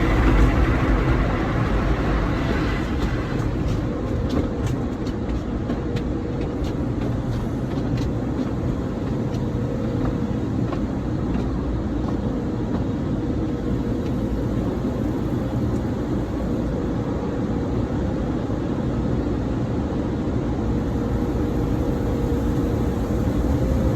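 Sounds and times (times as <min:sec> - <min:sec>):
car wash rushing noise: 0:00.0 - 0:11.8, 0:20.6 - 0:23.9
faint steady hum: 0:20.5 - 0:23.9.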